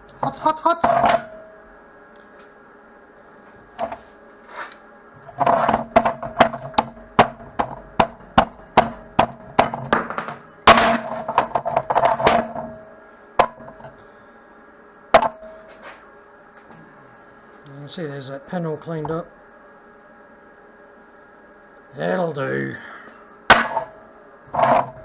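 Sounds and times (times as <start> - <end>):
hammer striking steel: 6.7 - 11.2, 23.5 - 24.0.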